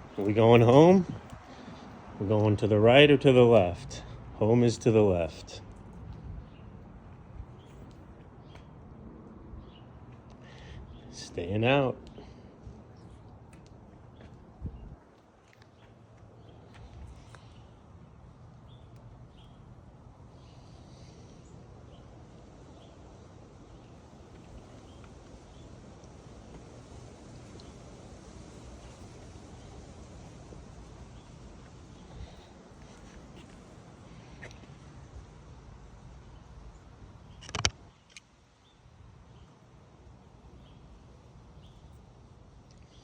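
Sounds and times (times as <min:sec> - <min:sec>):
wind buffeting microphone: 0:00.0 - 0:02.2, 0:14.2 - 0:15.1
small click: 0:37.4 - 0:38.3.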